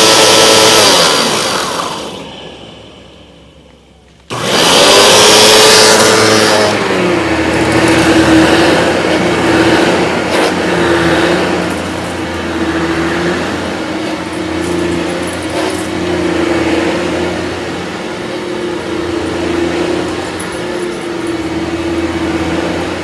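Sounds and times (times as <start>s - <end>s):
vacuum cleaner on carpet: 0.0s - 23.0s.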